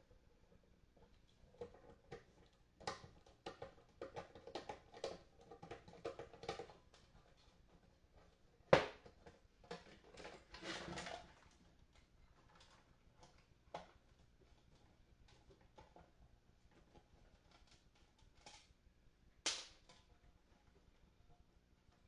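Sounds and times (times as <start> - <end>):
scraping rustle: 10.0 - 11.4.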